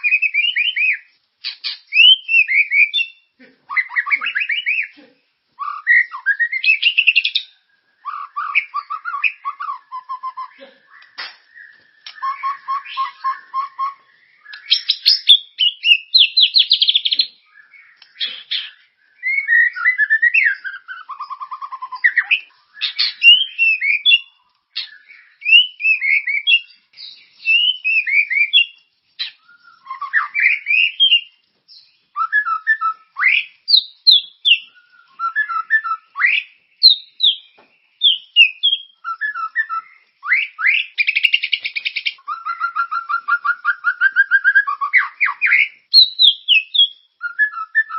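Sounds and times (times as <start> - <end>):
songbird whistling and chirping: 0.0 - 5.0, 5.6 - 47.9
fast rattling bird trills: 38.0 - 47.9.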